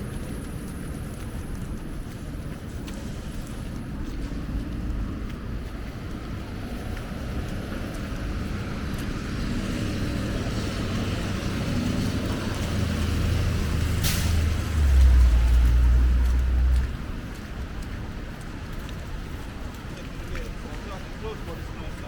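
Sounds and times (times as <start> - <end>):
heavy vehicle engine rumble: 0.0 - 22.0
street traffic: 0.0 - 22.0
short sharp hiss: 14.0 - 14.4.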